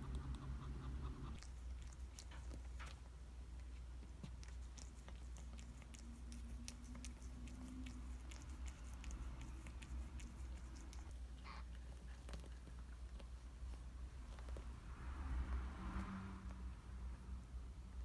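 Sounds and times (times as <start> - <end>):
steady low hum: 0.0 - 18.0
cat licking wet clicks: 0.1 - 2.8, 4.2 - 11.2.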